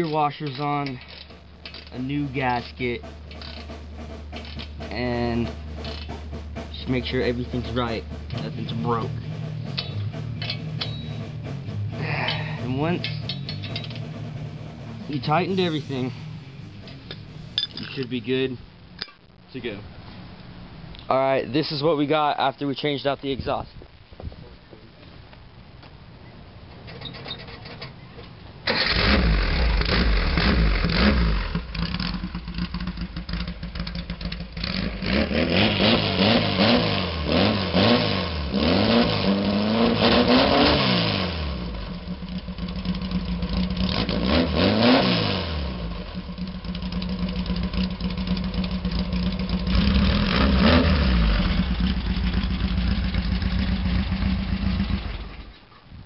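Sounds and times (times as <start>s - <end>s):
car engine starting and revving: 0.8s - 18.2s, 28.6s - 55.5s.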